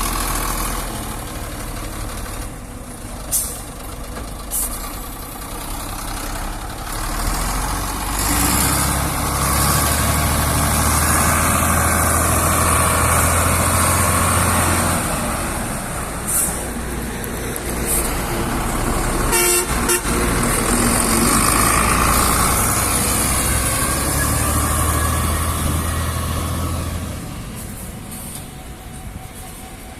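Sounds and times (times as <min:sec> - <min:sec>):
heavy truck engine droning: 0:00.0 - 0:29.9
truck horn honk: 0:19.2 - 0:20.5.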